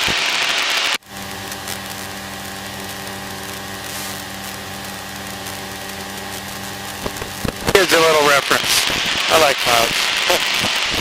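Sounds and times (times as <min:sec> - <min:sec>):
light aircraft engine droning: 0:01.0 - 0:08.5.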